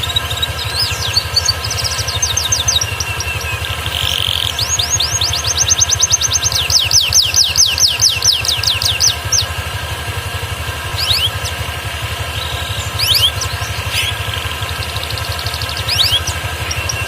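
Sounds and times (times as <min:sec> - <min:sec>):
canary singing trill: 0:00.0 - 0:09.8, 0:10.8 - 0:17.0
low hum: 0:10.4 - 0:17.0.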